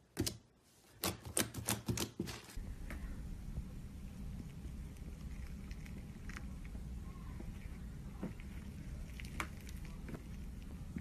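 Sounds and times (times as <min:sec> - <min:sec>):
steady low hum: 0:02.6 - 0:11.0.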